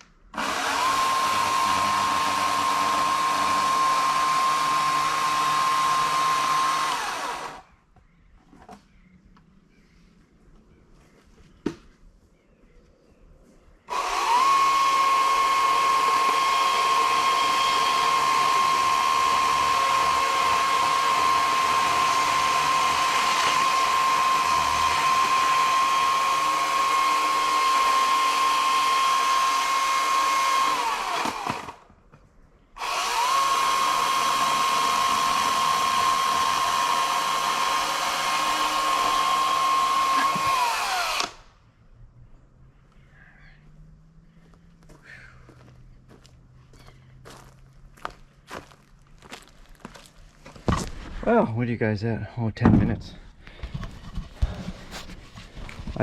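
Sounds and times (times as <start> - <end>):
electric chainsaw whine: 0.3 - 7.7, 13.9 - 31.8, 32.8 - 41.5.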